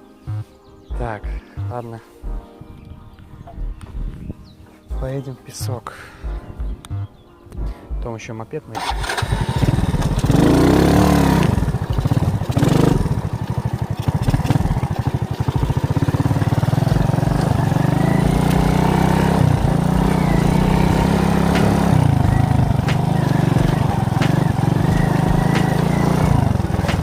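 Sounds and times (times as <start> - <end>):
moped engine revving: 8.8 - 27.0.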